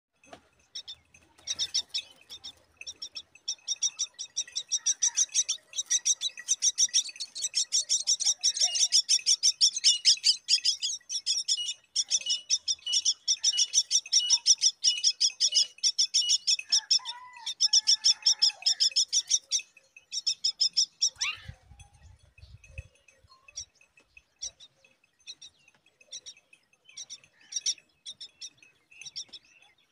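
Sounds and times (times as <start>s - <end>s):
nestlings chirping rapidly: 0.8s - 21.5s.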